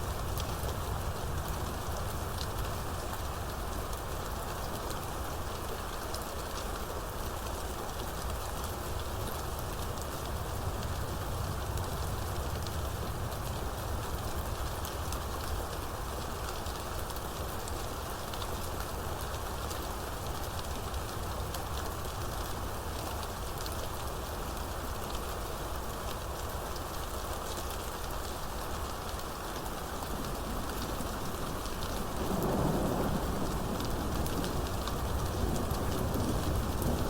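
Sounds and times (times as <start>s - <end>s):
heavy rain falling: 0.1s - 37.0s
thunder rumbling: 30.1s - 37.0s.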